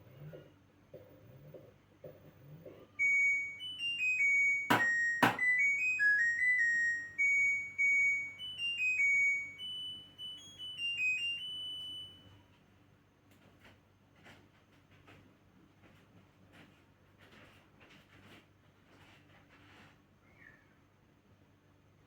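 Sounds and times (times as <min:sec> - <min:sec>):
washing machine beeper melody: 0:02.2 - 0:12.6.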